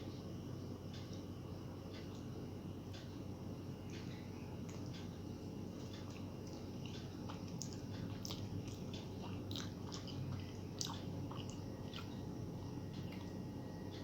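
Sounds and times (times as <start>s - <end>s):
person chewing food: 3.8s - 13.5s.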